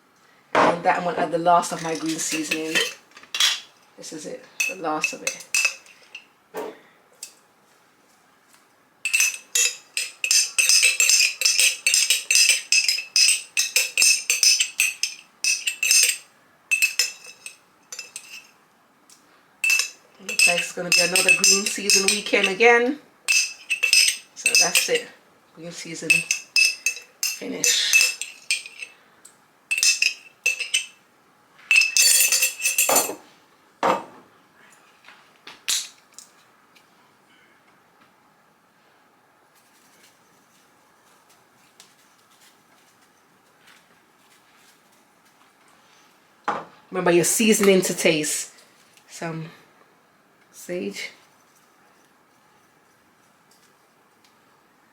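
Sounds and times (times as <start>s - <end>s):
metal utensil scraping container: 1.7s - 3.7s, 9.1s - 18.5s, 19.6s - 22.7s, 23.3s - 25.1s, 26.0s - 28.9s, 29.7s - 30.9s.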